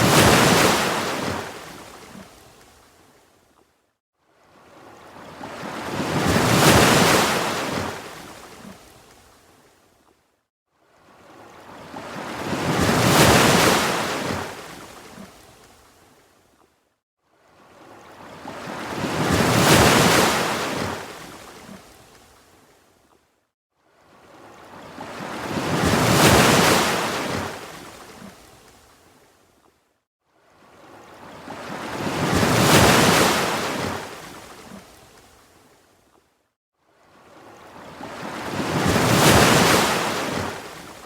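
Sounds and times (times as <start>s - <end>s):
ocean waves washing in: 0.0s - 2.6s, 37.6s - 41.0s.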